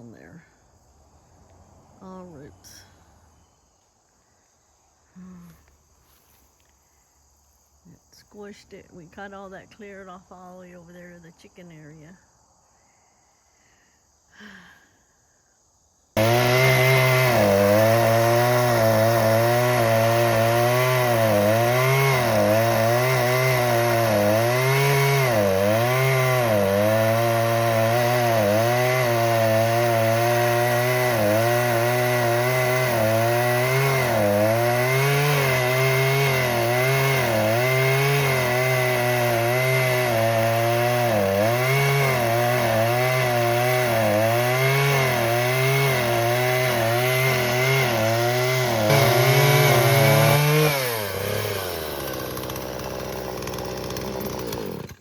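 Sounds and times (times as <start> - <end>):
chainsaw cutting wood: 16.2 - 55.0.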